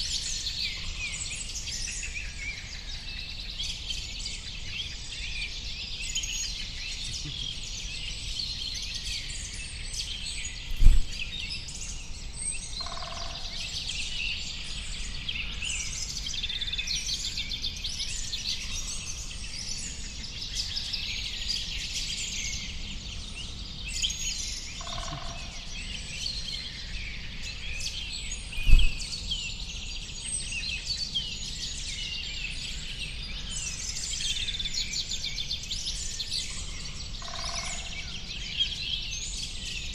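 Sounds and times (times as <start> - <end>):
songbirds chirping: 0.0 - 39.9
short low thump: 10.7 - 11.3, 28.6 - 29.1.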